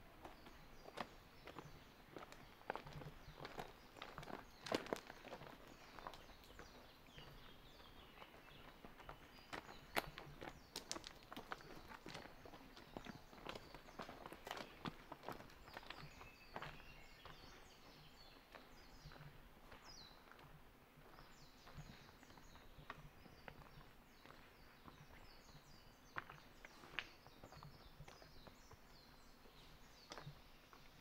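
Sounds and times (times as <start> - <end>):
birds chirping: 0.1 - 31.0
footsteps on gravel: 0.2 - 25.0.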